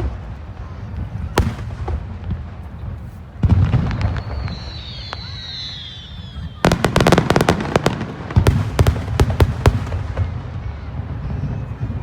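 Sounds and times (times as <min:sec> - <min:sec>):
fireworks bangs: 0:00.0 - 0:12.0
fireworks crackle: 0:00.0 - 0:12.0
high falling whistles: 0:03.9 - 0:07.5.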